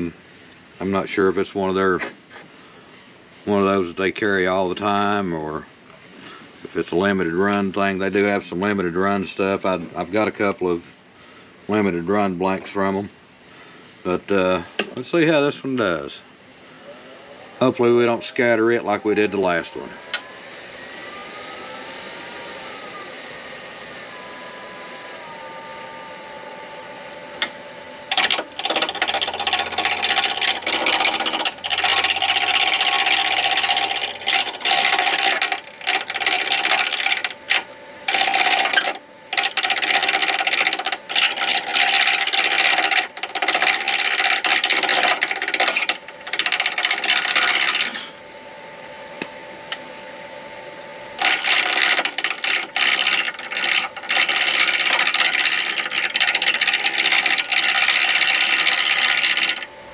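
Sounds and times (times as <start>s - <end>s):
lathe motor humming: 0.0s - 59.9s
turning tool scraping on lathe: 17.6s - 20.0s, 28.1s - 48.1s, 51.2s - 59.7s.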